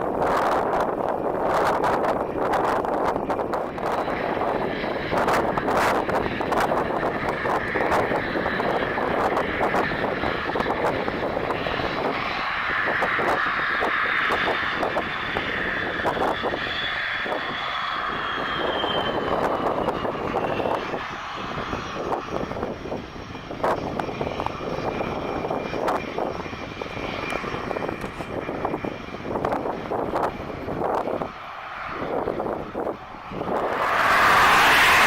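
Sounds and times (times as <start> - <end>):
jet engines whining: 0.0 - 35.0
rough rumble: 27.9 - 35.0.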